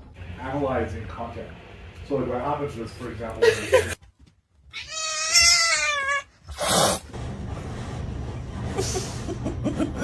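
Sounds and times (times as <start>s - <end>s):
cat yowling: 4.7s - 6.3s
cat hissing: 4.9s - 7.1s.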